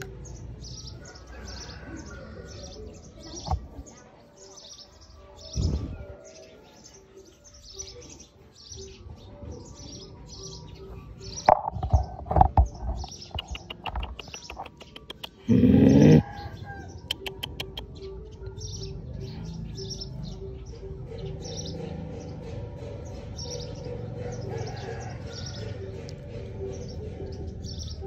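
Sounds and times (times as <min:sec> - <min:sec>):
small birds chirping: 0:00.0 - 0:28.0
loud rumble near microphone: 0:05.5 - 0:06.1.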